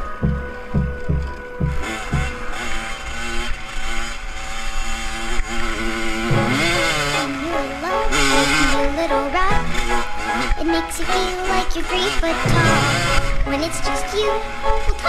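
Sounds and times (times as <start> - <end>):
music beat: 0.0 - 2.7, 6.3 - 10.6, 12.2 - 15.0
motorcycle engine revving: 0.0 - 15.0.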